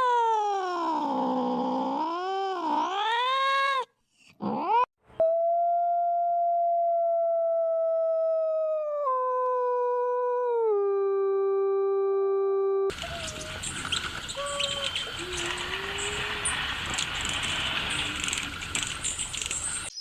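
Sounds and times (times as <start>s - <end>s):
animal howl: 12.9s - 13.7s, 14.3s - 16.5s
outdoor background noise: 12.9s - 20.0s
faint whistled calls and chirps: 13.0s - 16.6s, 19.0s - 20.0s.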